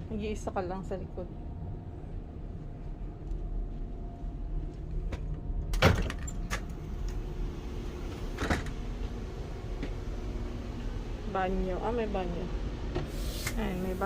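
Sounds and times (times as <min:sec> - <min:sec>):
train low hum: 0:00.0 - 0:14.0
sliding door hissing open: 0:13.0 - 0:14.0.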